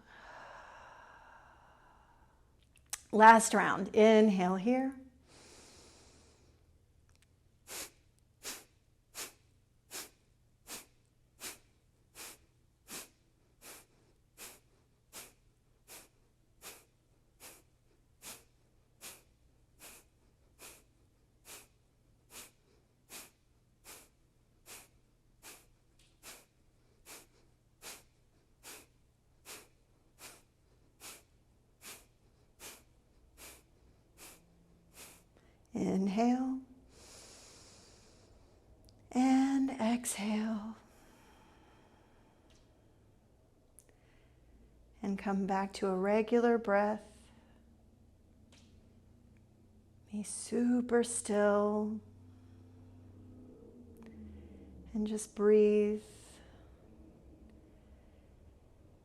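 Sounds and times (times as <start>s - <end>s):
long inhalation through nose: 5.3s - 6.6s, 7.7s - 35.5s, 36.9s - 38.6s
forceful nasal exhalations: 7.7s - 35.6s.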